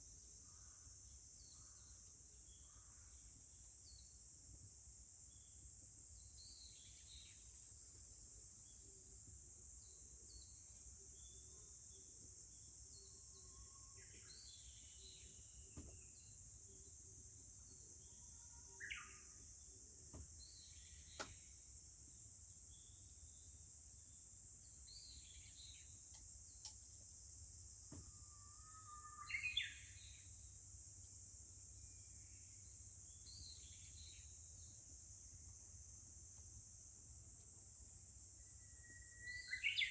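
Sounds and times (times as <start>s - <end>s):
cicadas droning: 0.0s - 39.9s
faint sharp clicks: 26.1s - 27.0s.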